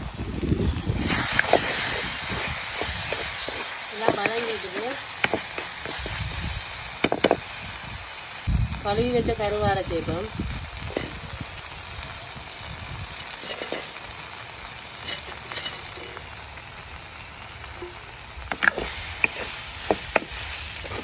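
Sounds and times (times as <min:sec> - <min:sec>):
food sizzling in a clay pot: 0:00.0 - 0:21.0
wooden spatula scraping a pot: 0:01.1 - 0:06.2, 0:13.4 - 0:13.9, 0:15.0 - 0:16.2, 0:17.8 - 0:21.0.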